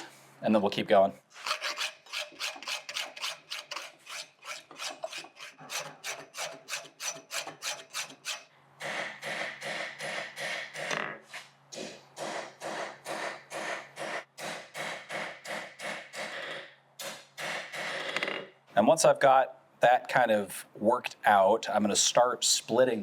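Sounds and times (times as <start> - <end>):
hand file rasping on steel: 1.4 - 8.5.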